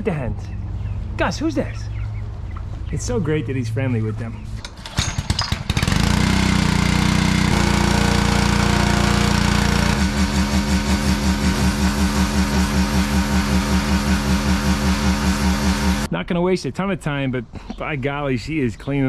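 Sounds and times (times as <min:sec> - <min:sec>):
small petrol engine running: 0:04.8 - 0:16.1
rhythmic engine pulsing: 0:05.8 - 0:16.1.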